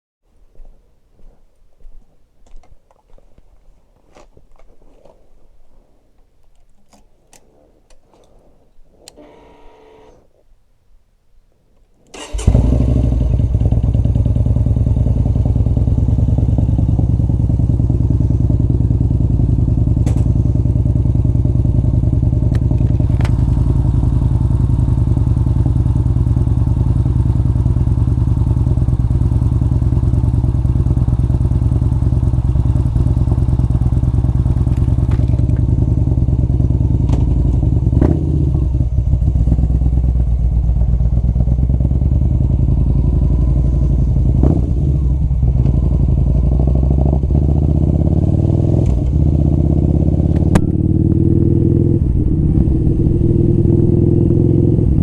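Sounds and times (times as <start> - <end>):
sharp clicks: 6.4 - 10.4
motorcycle engine running: 12.2 - 55.0.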